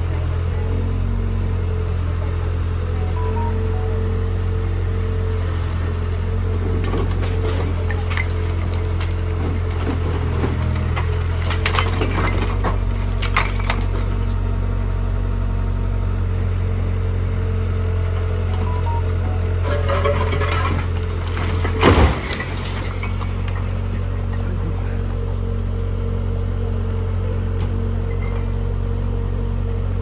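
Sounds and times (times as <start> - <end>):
engine running: 0.0 - 30.0
wood cracking and splintering: 6.7 - 14.4, 19.6 - 25.2.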